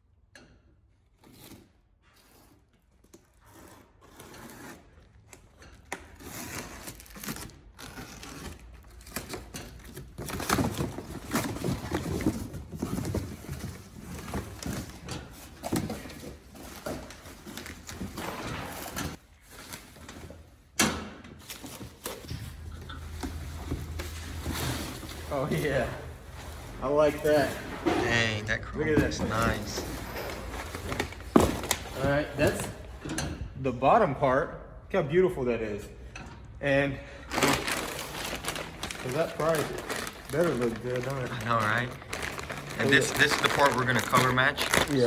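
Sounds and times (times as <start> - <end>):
cardboard and packing scraping: 6.1 - 20.6, 21.4 - 33.0, 37.3 - 45.0.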